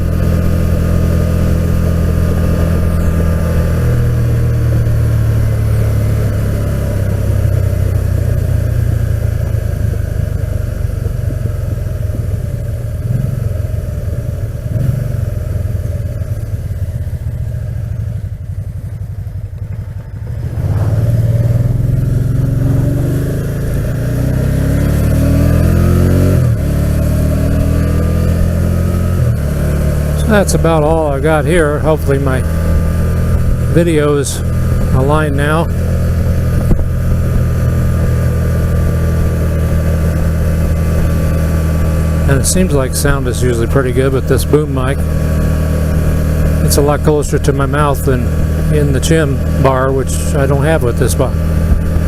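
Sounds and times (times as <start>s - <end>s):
motorcycle engine droning: 0.0s - 52.0s.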